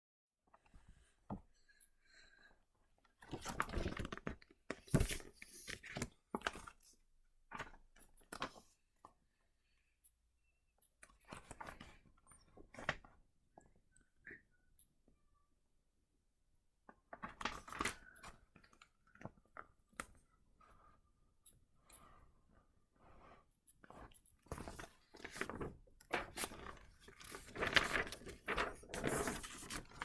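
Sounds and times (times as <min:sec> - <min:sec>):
paper rustling: 0:24.5 - 0:30.0.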